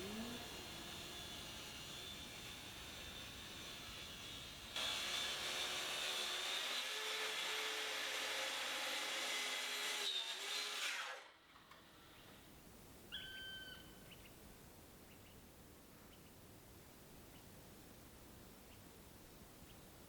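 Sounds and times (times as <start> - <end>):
faint chirp: 13.1 - 14.4.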